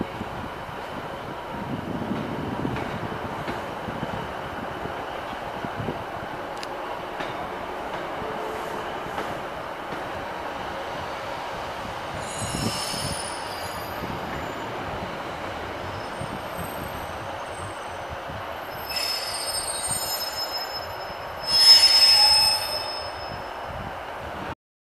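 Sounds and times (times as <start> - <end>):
train rumbling into platform: 0.0 - 24.6
high-pitched wheel and brake squeals: 12.2 - 14.6, 18.7 - 23.8.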